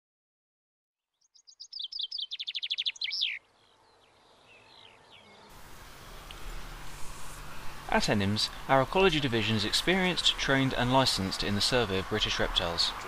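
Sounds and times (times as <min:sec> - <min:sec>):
songbird singing trill: 0:01.1 - 0:06.4.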